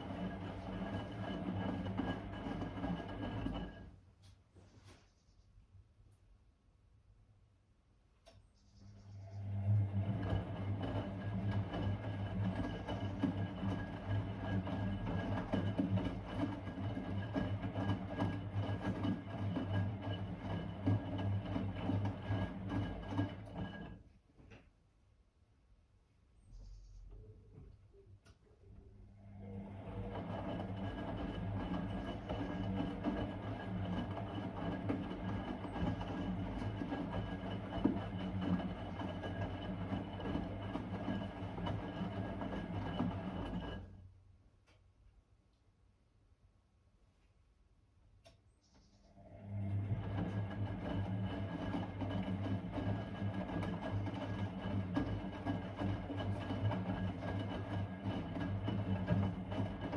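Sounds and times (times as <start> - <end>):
washing machine hum: 0.0 - 4.2, 8.7 - 24.6, 27.5 - 44.1, 49.1 - 59.9.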